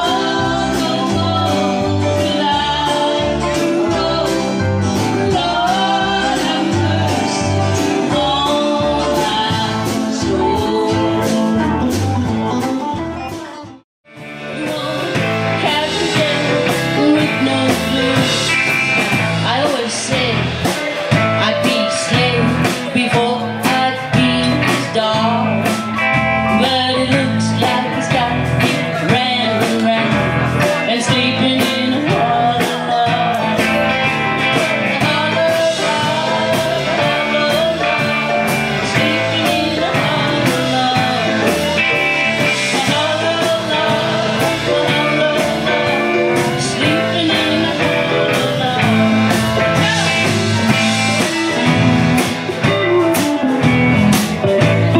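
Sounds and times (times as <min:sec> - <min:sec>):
person singing: 0:00.0 - 0:12.6, 0:14.1 - 0:54.9
guitar: 0:00.0 - 0:54.9
steady drum beat: 0:14.2 - 0:54.9.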